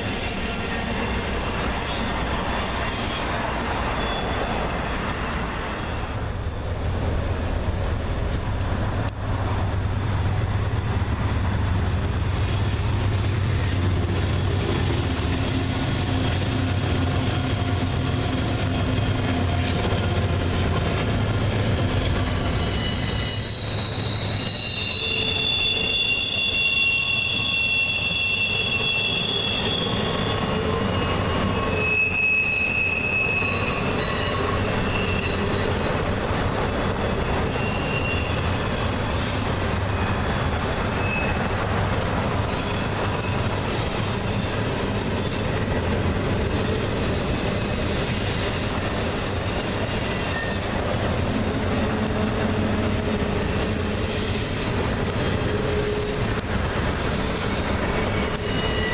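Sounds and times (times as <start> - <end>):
wheel flanges squealing: 0.0 - 6.2, 21.9 - 45.8, 46.6 - 58.9
freight train cars rolling: 0.0 - 58.9.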